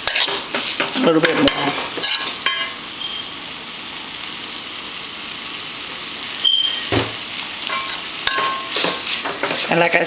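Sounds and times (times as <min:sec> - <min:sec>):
spoon knocking a pan: 0:00.0 - 0:02.8, 0:06.8 - 0:09.7
spoon scraping a pan: 0:00.0 - 0:02.8, 0:07.6 - 0:10.0
meat sizzling in a pan: 0:00.0 - 0:10.0.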